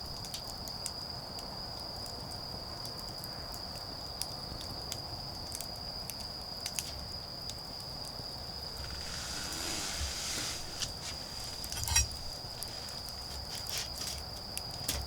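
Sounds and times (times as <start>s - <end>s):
campfire crackling: 8.4s - 14.8s
rushing hiss: 8.7s - 13.2s.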